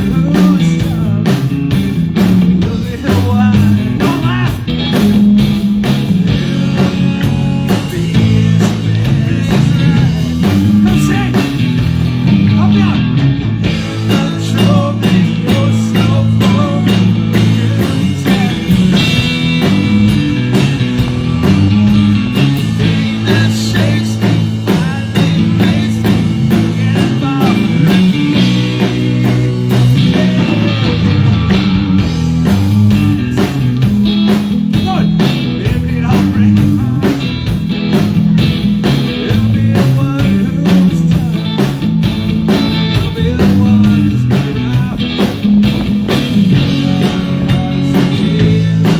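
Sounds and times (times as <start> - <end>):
bass line: 0.0 - 48.9
drum kit: 0.0 - 48.9
electric guitar: 0.0 - 48.9.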